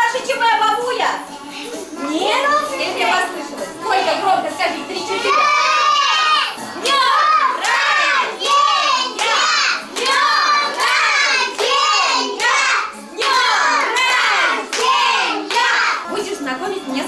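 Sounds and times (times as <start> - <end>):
children chanting in unison: 5.2 - 16.0
hand clapping: 7.6 - 12.6, 13.2 - 15.8.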